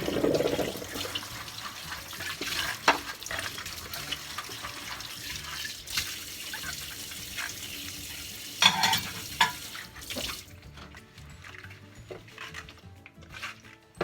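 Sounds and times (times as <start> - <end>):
tap running into a sink: 2.2 - 3.6, 4.3 - 10.5
dishes clinking: 8.6 - 9.7.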